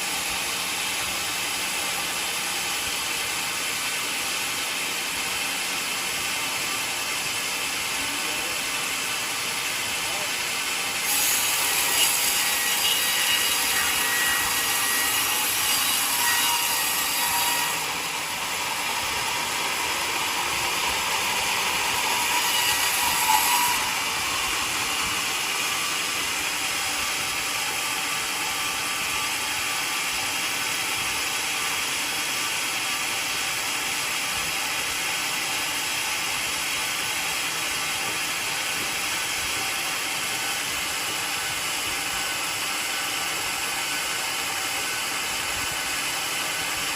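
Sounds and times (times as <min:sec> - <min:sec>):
sawmill blade cutting log: 0:00.0 - 0:46.9.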